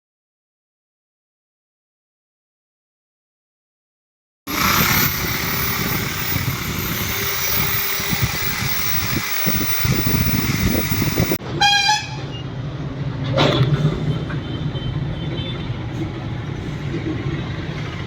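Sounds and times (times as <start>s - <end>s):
street traffic noise: 4.5s - 18.0s
vehicle horn toot: 11.6s - 12.4s.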